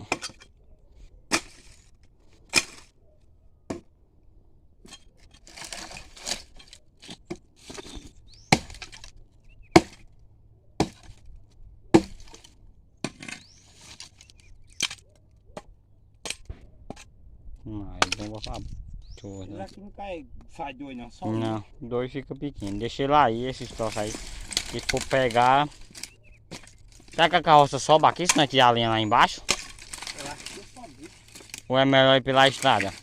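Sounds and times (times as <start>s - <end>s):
billhook chopping firewood: 1.3s - 3.0s, 3.7s - 4.0s, 4.8s - 10.1s, 10.8s - 17.1s, 23.6s - 31.7s
brush rustling: 11.0s - 15.2s, 22.5s - 33.0s.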